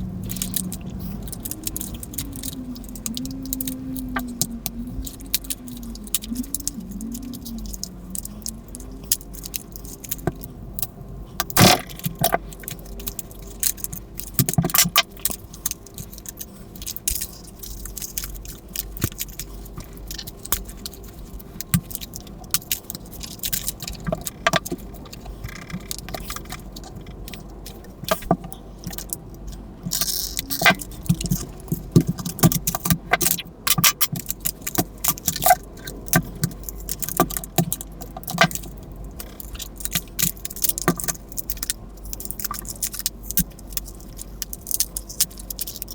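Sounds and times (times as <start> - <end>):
faint wavering tone: 0.0 - 9.1.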